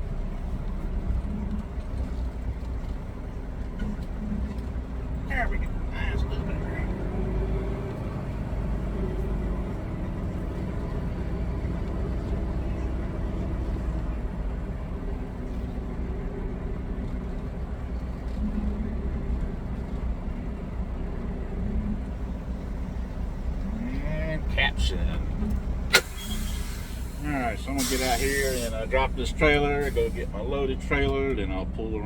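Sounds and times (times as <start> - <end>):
truck diesel engine humming: 0.0 - 32.0.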